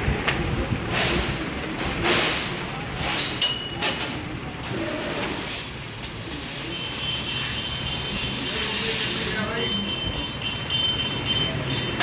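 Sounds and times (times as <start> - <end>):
metal cutting machine hiss: 4.6 - 9.5.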